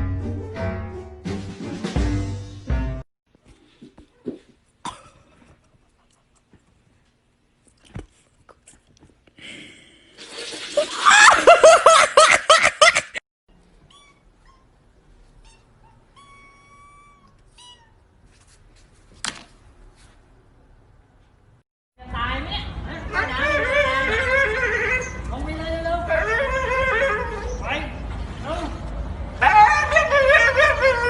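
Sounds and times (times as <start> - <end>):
cat yowling: 15.5 - 18.0.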